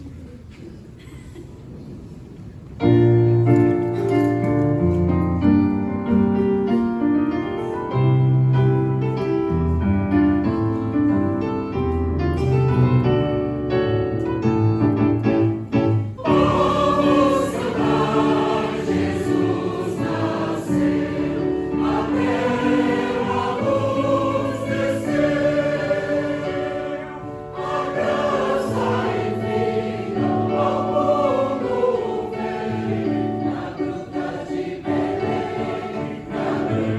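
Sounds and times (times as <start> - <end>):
keyboard chords: 11.2 - 36.9
choir singing carols: 15.9 - 36.9.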